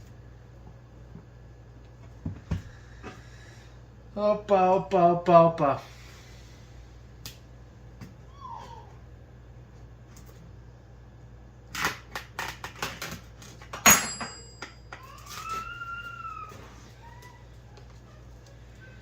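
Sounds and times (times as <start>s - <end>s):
sharp knock with metallic ring: 13.9s - 14.6s.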